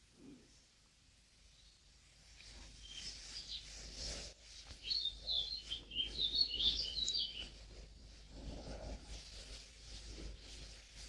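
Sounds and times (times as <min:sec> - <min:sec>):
low room noise: 0:00.0 - 0:11.0
songbird twittering: 0:04.8 - 0:07.6.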